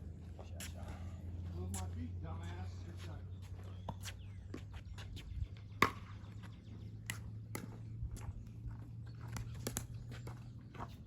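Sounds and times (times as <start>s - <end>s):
pickleball pops against paddles: 5.8s - 6.2s, 7.0s - 7.8s, 9.4s - 10.0s.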